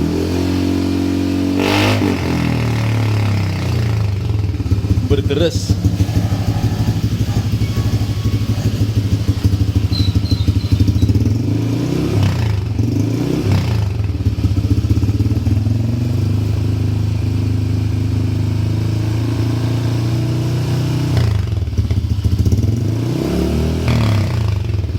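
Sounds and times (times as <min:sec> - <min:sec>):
scooter engine idling and revving: 0:00.0 - 0:24.9.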